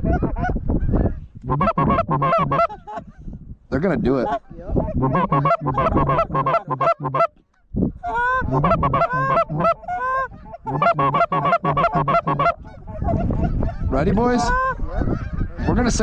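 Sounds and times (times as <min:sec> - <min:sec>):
goose honking and clucking: 0:00.0 - 0:03.2, 0:04.2 - 0:07.4, 0:08.0 - 0:16.0.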